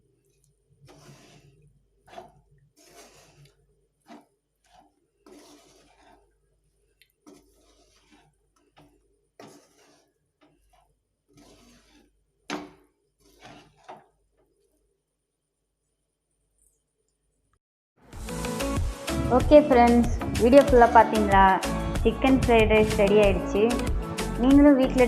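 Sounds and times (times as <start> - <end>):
utensil scraping a pan: 0.8 - 14.2, 18.2 - 24.3.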